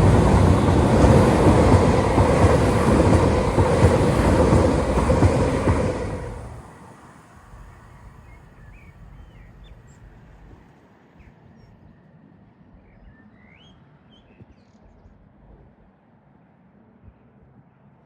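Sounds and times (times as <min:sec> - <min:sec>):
passing train: 0:00.0 - 0:09.2.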